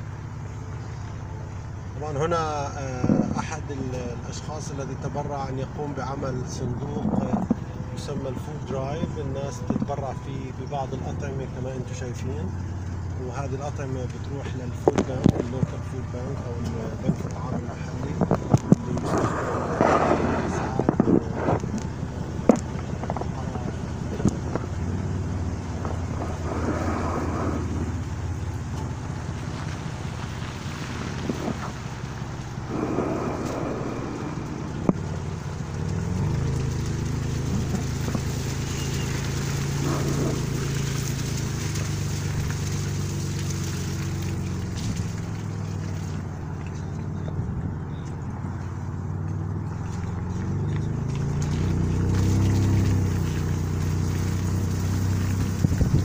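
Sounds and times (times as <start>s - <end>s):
car engine running: 0.0s - 56.0s
faint voices: 2.0s - 25.2s.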